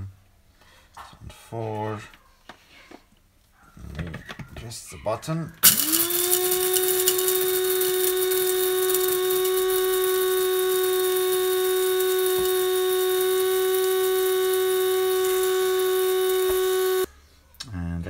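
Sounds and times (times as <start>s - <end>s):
electric coffee grinder whining: 5.6s - 17.1s.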